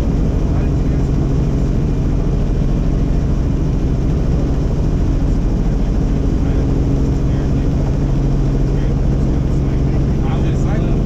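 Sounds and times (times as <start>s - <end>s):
helicopter rotor drone: 0.0s - 11.0s.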